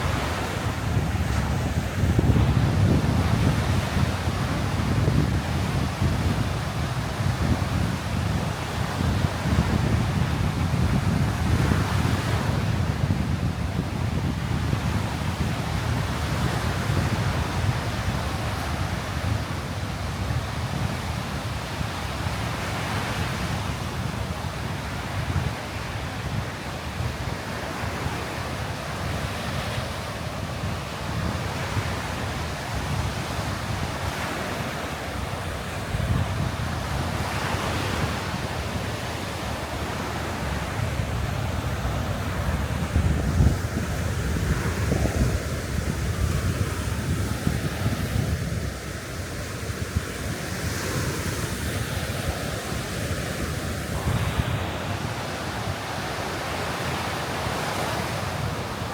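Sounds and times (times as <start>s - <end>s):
wind buffeting microphone: 0.0s - 25.7s, 29.1s - 58.9s
surf breaking on a beach: 0.0s - 58.9s.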